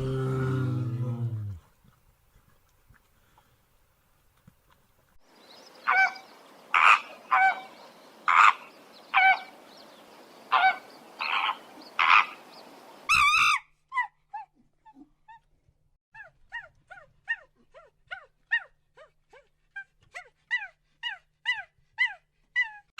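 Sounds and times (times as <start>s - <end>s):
animal calling: 5.8s - 9.6s, 10.5s - 12.5s
animal yelps: 5.9s - 6.2s, 6.8s - 7.7s, 8.3s - 9.5s, 10.5s - 12.4s, 13.1s - 15.4s, 16.2s - 22.9s.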